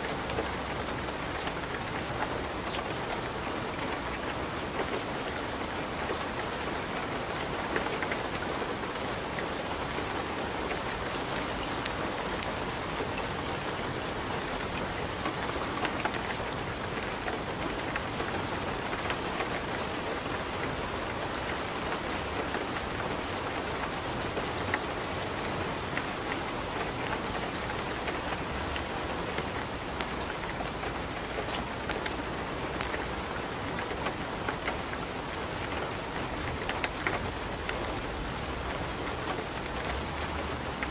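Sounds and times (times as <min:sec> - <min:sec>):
wood fire crackling: 0:10.7 - 0:40.9.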